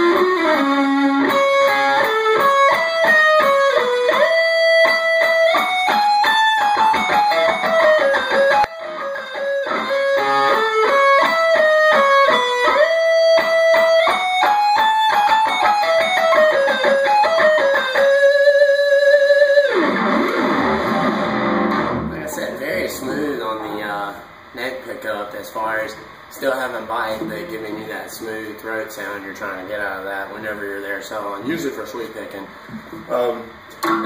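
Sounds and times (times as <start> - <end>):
electric guitar lead runs: 0.0 - 23.3.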